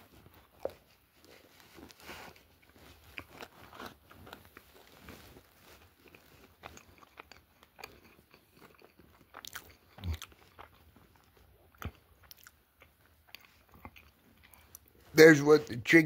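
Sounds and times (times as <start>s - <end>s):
person chewing food: 0.0s - 15.2s.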